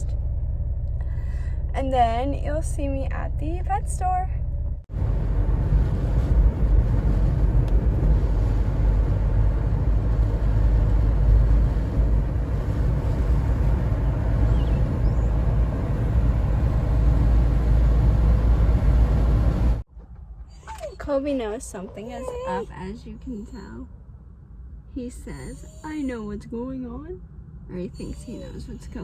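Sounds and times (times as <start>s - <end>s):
car engine rumble: 0.0s - 25.1s
road noise: 0.0s - 29.0s.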